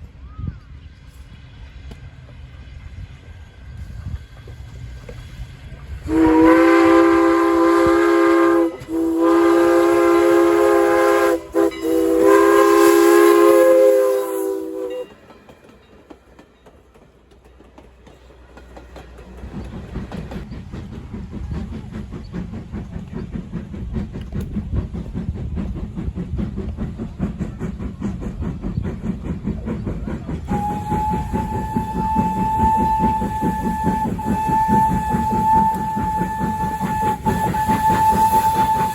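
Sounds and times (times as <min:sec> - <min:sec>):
train wheels rumbling on rails: 0:00.0 - 0:38.9
steam locomotive chime whistle: 0:06.0 - 0:16.0, 0:30.4 - 0:38.9.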